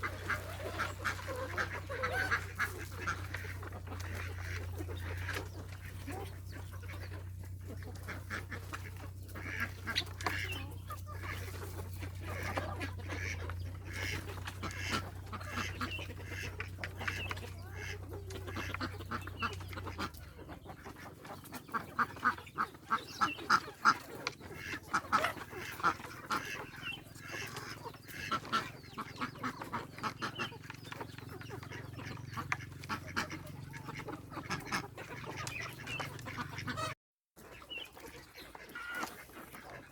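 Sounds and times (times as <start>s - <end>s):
low steady hum: 0.0s - 36.9s
ducks and geese calling: 0.0s - 39.9s.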